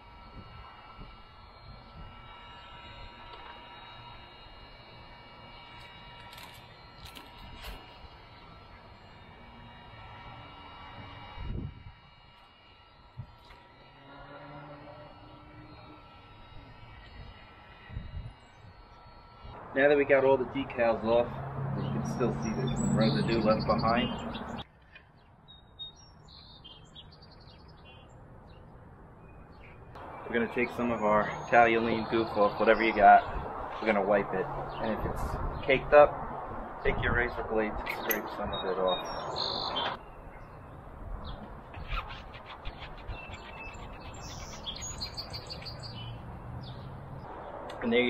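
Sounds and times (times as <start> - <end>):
low outdoor background: 0.0 - 48.0
small songbirds chirping: 21.8 - 35.8, 38.1 - 47.6.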